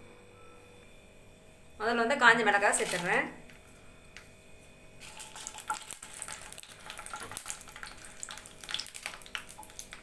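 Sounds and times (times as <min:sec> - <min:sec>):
chillies sizzling in oil: 0:05.0 - 0:10.0.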